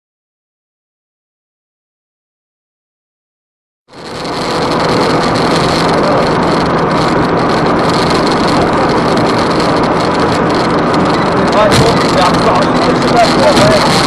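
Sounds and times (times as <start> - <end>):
car engine: 3.9 - 14.0
road noise: 3.9 - 14.0.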